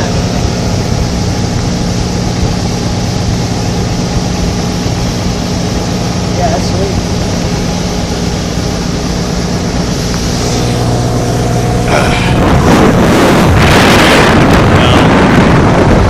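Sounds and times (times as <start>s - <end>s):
motorboat engine running: 0.0s - 16.0s
water noise: 0.0s - 16.0s
wind on microphone: 0.0s - 16.0s.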